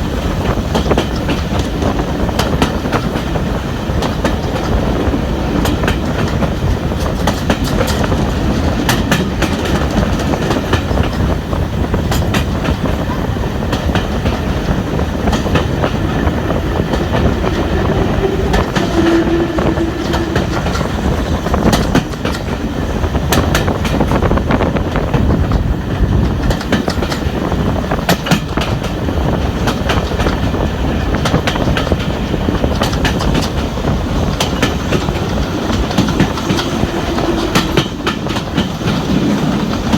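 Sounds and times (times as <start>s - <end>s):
train rolling rumble: 0.0s - 39.9s
wheels clicking over rail joints: 0.0s - 39.9s.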